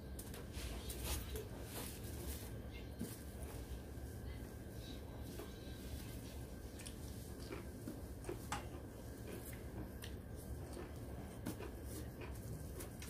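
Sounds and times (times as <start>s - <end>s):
wet chewing smacks: 6.7s - 13.0s.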